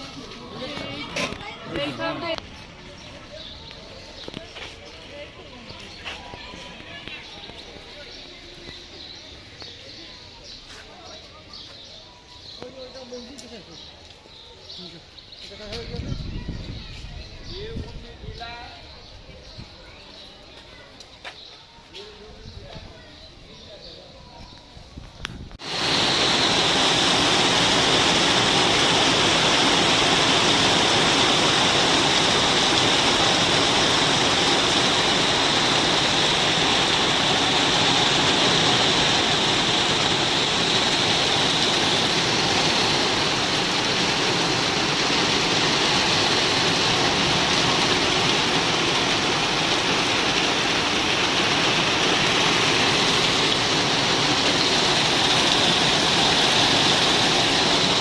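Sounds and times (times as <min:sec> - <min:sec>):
heavy rain pouring: 0:25.6 - 0:58.0.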